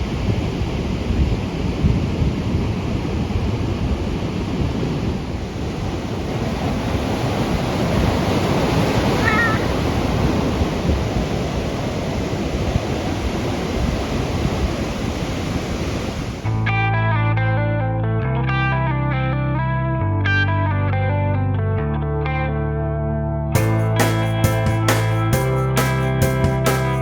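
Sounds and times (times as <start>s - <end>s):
ocean surf breaking: 0.0s - 16.5s
short warbling high call: 9.2s - 9.7s.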